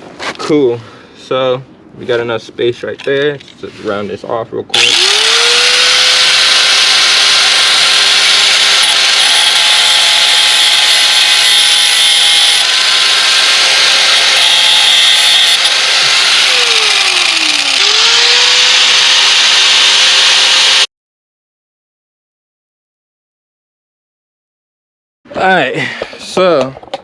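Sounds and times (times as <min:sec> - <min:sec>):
power tool grinding: 0:04.7 - 0:20.9.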